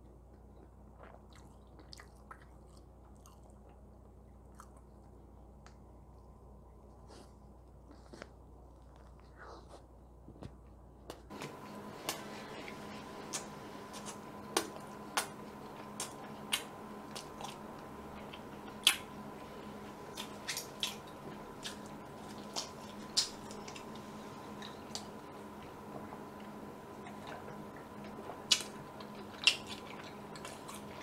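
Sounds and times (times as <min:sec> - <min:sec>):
steady hum: 0:00.0 - 0:31.0
person chewing food: 0:00.3 - 0:05.3, 0:11.4 - 0:31.0.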